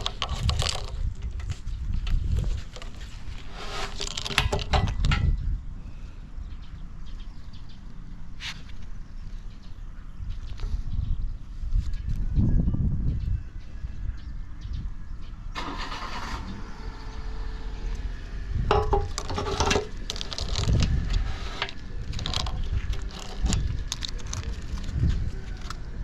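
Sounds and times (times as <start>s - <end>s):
clicks and rattles: 0.0s - 3.2s, 3.9s - 5.4s, 18.7s - 25.8s.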